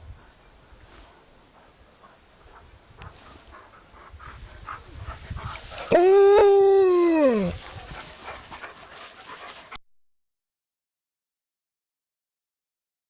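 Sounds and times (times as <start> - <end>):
dog howling: 5.9 - 7.7.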